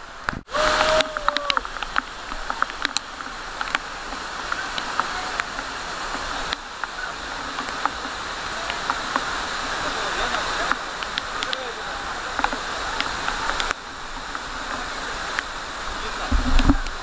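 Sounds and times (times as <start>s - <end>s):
running water rushing: 0.0s - 17.0s
sharp clicks: 10.3s - 11.7s.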